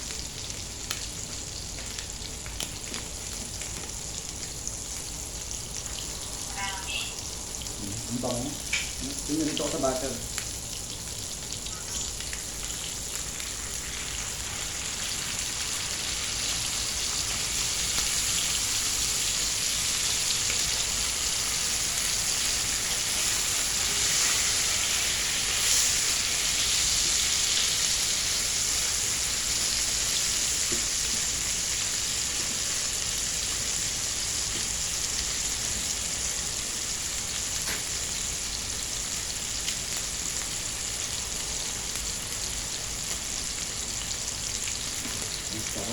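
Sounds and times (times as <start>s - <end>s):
meat sizzling in a pan: 0.0s - 45.9s.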